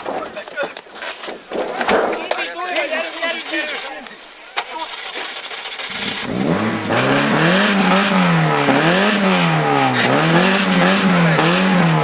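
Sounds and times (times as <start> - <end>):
racing car engine revving: 4.8 - 12.0.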